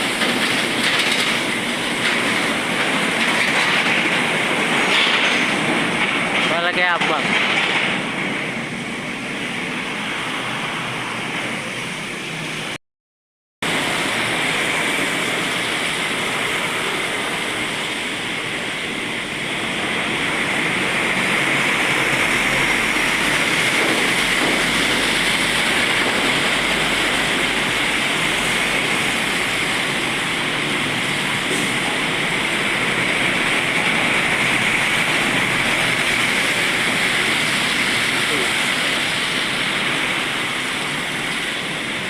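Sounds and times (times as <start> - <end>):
tyres hissing on wet road: 0.0 - 12.8, 13.6 - 42.0.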